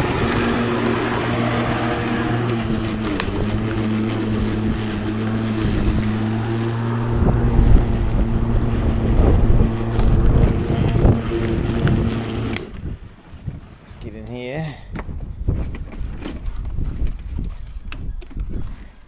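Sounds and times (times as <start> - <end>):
electric lawn mower running: 0.0 - 12.8
wind rumbling on microphone: 0.0 - 19.0.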